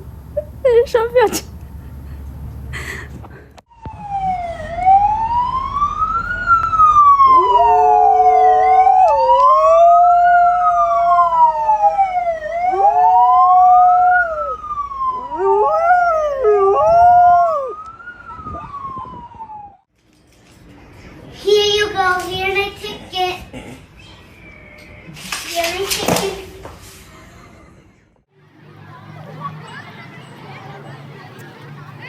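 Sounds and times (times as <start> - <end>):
siren wailing: 3.7 - 19.9
dog howling: 4.0 - 5.7, 7.2 - 14.6, 15.2 - 17.8.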